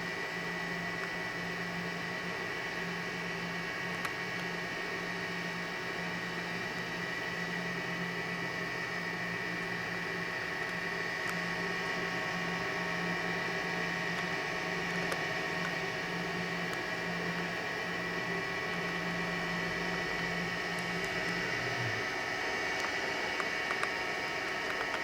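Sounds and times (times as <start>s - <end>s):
electrical hum and hiss: 0.0s - 25.0s
high whine: 10.9s - 23.8s.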